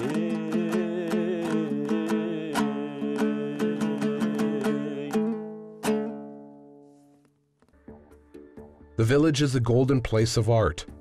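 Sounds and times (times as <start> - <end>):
dombra strumming: 0.0 - 7.3.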